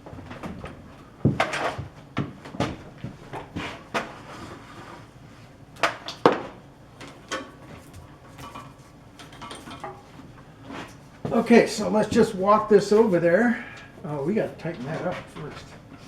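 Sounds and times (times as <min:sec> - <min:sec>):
heavy equipment knocking and clunking: 0:00.0 - 0:03.6.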